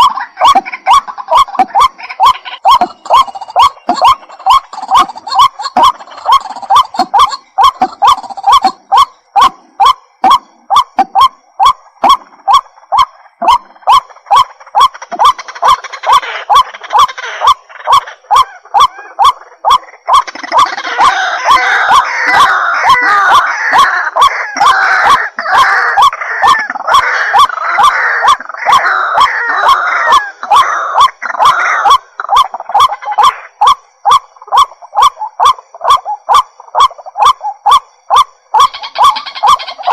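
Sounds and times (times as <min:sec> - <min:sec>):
bird calling sharp notes: 0:00.0 - 0:39.9.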